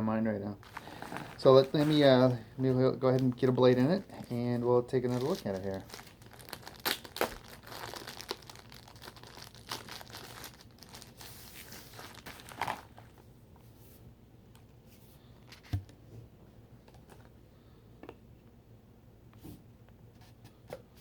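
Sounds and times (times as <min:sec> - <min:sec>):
plastic packaging crinkling: 0:00.6 - 0:13.3.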